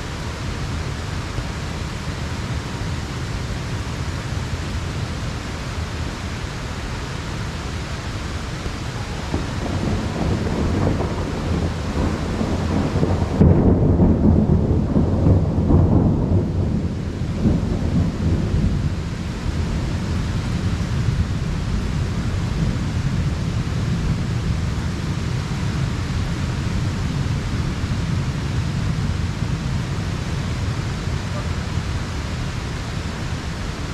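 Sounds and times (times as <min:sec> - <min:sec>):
heavy rain: 0:00.0 - 0:33.9
thunder rumbling: 0:08.9 - 0:33.9.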